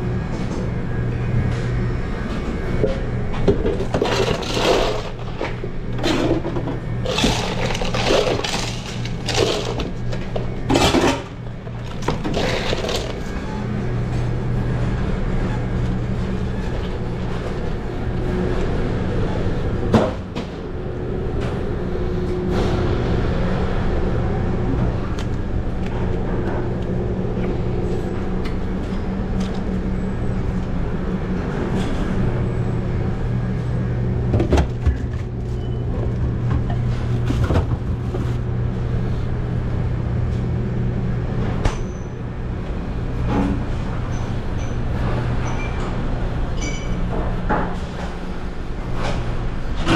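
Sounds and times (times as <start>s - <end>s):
ventilation hum: 0.0s - 49.9s
pans and utensils clanking: 3.5s - 13.3s.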